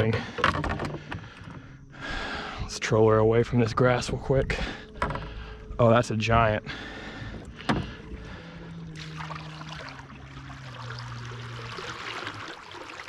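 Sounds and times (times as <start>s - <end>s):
low steady hum: 0.0s - 13.0s
water splashing and trickling: 3.7s - 13.0s.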